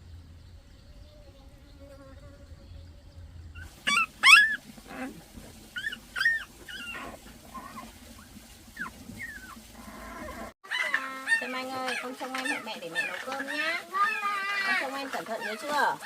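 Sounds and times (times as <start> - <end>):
animal whining cries: 3.6 - 5.2, 8.8 - 16.0.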